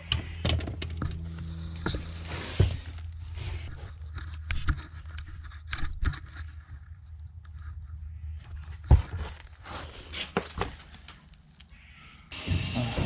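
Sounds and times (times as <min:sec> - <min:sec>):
steady low hum: 0:00.0 - 0:05.6
objects scraping: 0:00.2 - 0:05.5.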